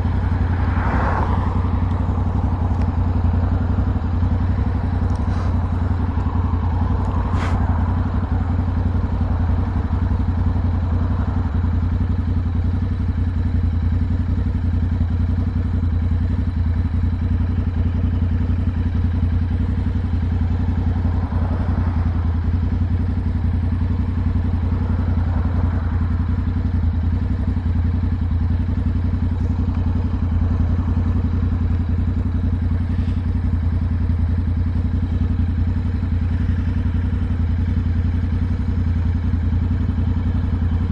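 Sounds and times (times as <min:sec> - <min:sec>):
motorcycle engine cruising: 0:00.0 - 0:40.9
road and wind noise: 0:00.0 - 0:40.9.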